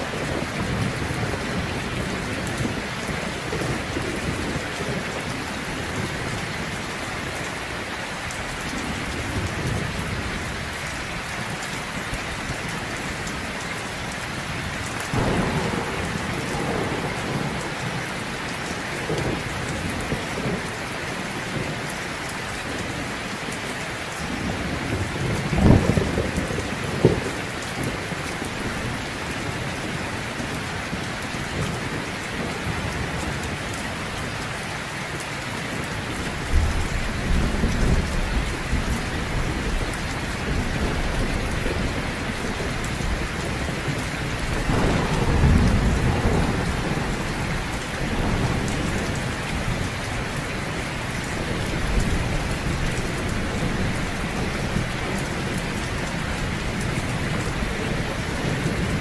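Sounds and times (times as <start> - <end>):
low rolls of thunder: 0.0 - 6.8, 15.1 - 21.9, 24.3 - 34.4, 36.1 - 59.0
heavy rain falling: 0.0 - 59.0.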